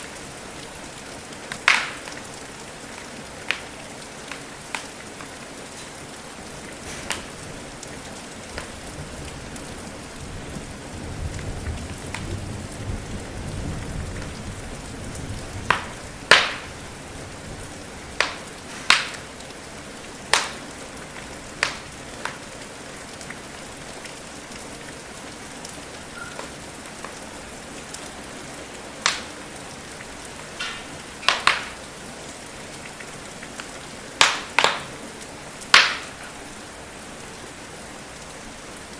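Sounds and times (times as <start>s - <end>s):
wood fire crackling and popping: 0.0s - 9.7s, 11.2s - 12.4s, 13.4s - 14.4s, 15.2s - 17.1s, 17.7s - 23.4s, 25.6s - 28.2s, 28.8s - 32.0s, 32.8s - 36.4s
rain hiss: 0.0s - 38.9s.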